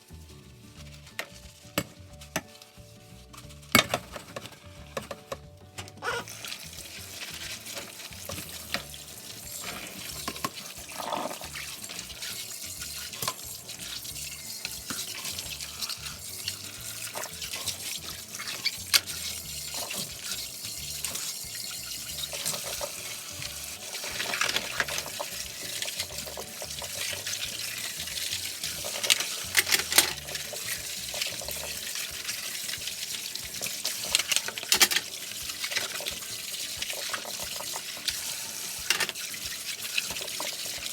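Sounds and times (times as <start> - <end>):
dishes clinking and knocking: 3.8 - 6.2, 28.8 - 30.5, 33.5 - 38.2, 38.8 - 39.2
tap running into sink: 3.8 - 40.9.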